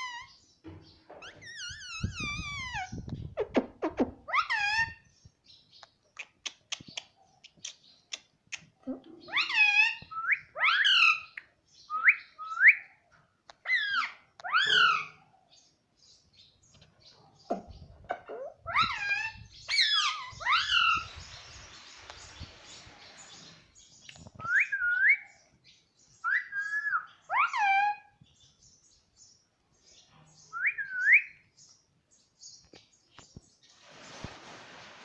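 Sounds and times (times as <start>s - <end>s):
parrot calls sweeping upward: 18.7s - 21.2s.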